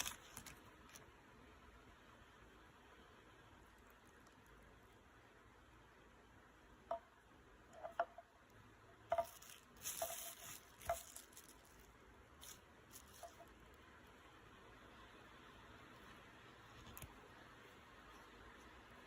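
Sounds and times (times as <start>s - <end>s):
light taps or clinks: 9.0s - 11.5s.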